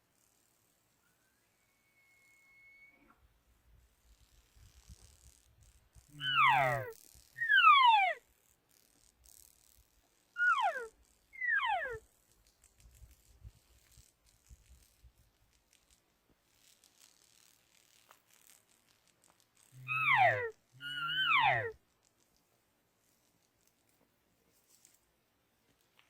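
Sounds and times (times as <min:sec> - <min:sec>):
elk cow mews: 0:06.2 - 0:08.2, 0:10.4 - 0:12.0, 0:19.8 - 0:21.8.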